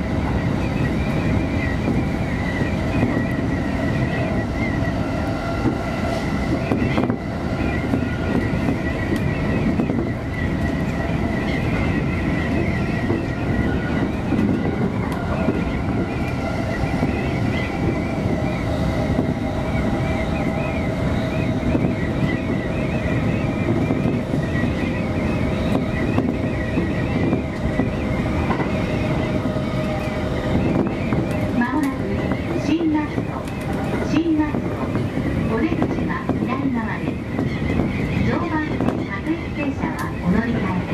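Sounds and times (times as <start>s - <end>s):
train wheels rumbling on rails: 0.0s - 40.9s
train whine: 0.0s - 40.9s.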